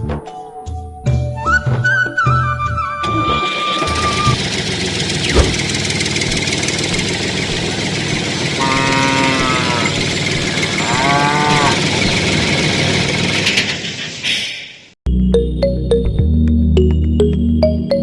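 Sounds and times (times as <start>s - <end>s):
tractor engine running: 3.0s - 14.2s
drawn-out pitched calls: 6.8s - 12.3s.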